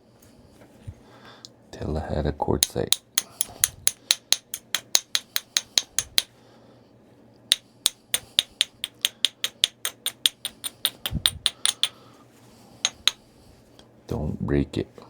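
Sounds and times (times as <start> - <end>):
knapping tool clicking on stone: 2.6 - 6.3, 7.5 - 12.0, 12.9 - 13.2.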